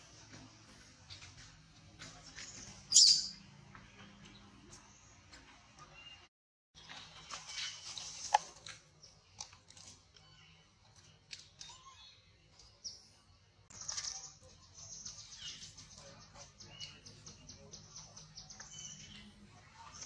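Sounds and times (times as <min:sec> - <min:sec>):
fast high bird chirps: 0:02.9 - 0:03.4.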